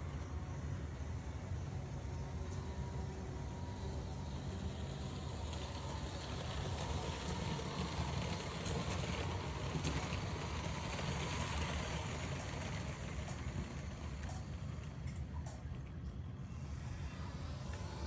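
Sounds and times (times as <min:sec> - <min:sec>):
model train running on track: 0:00.0 - 0:18.0.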